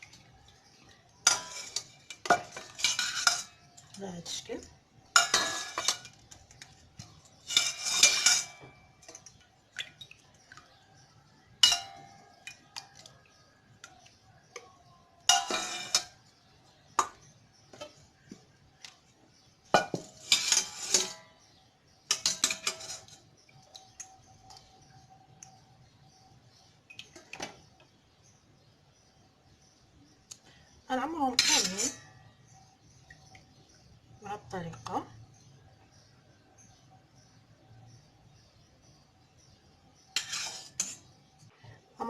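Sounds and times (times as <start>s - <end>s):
spoon clinking and scraping pot: 0.0s - 4.4s, 5.1s - 18.4s, 19.7s - 24.7s, 31.3s - 32.3s, 40.0s - 41.4s.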